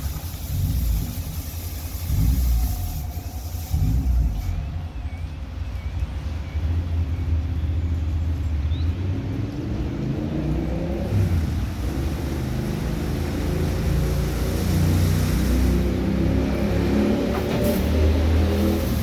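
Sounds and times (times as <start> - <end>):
car wash machine rumbling: 0.0 - 5.6, 9.8 - 19.0.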